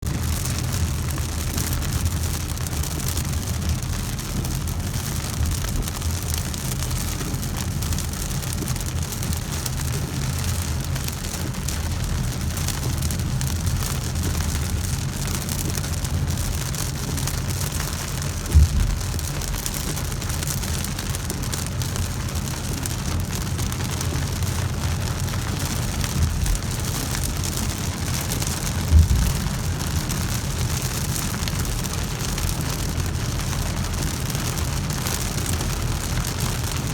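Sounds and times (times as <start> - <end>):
heavy rain falling: 0.0 - 36.9
thumps: 18.5 - 19.2, 28.7 - 30.7.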